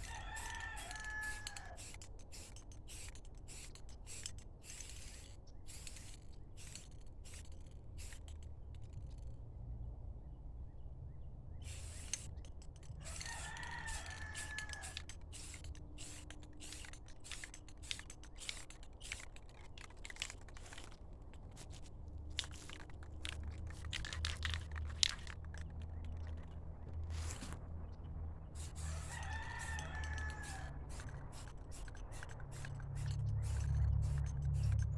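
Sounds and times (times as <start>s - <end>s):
rooster crowing: 0.0s - 1.9s, 13.0s - 15.1s, 28.7s - 31.0s.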